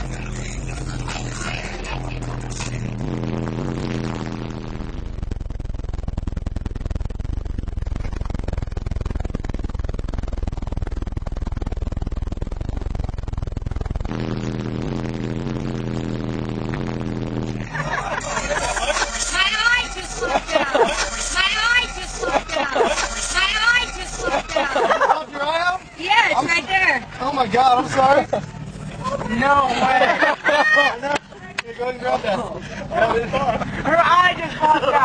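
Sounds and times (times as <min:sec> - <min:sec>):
distorted rattling bass: 0:00.0 - 0:35.0
loud bass music: 0:00.0 - 0:35.0.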